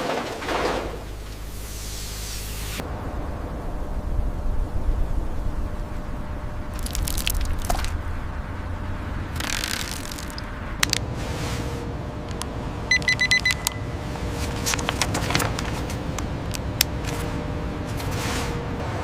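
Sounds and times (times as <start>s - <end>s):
factory machinery rumbling: 0.0s - 19.0s
short high beeps: 12.9s - 13.9s.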